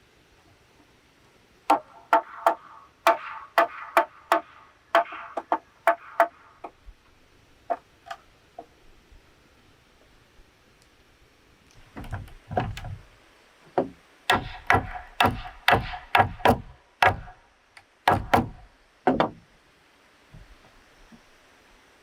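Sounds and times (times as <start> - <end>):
hand tool knocking bamboo: 1.7 - 6.8, 13.8 - 17.4, 18.1 - 19.4.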